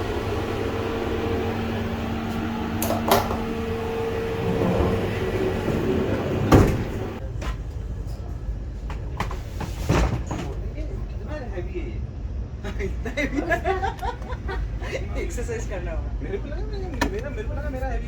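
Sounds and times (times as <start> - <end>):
train rumble and hum: 0.0 - 18.0
loud clunk: 4.3 - 7.2.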